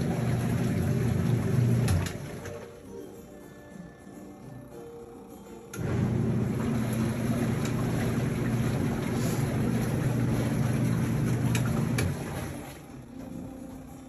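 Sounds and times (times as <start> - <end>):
water churning: 0.0 - 2.8, 5.8 - 13.5
washing machine motor hum: 0.0 - 14.0.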